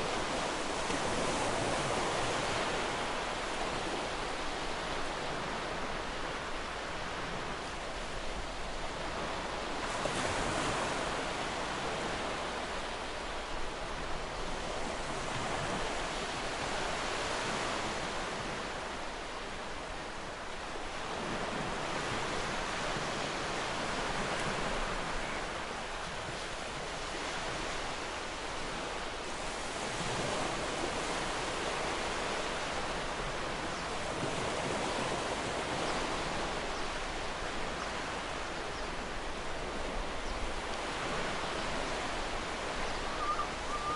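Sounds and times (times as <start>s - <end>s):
waves breaking on shore: 0.0s - 43.9s.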